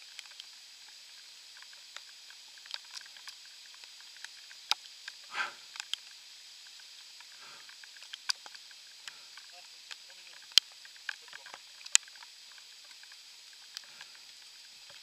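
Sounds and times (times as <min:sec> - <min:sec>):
light rain hiss: 0:00.0 - 0:15.0.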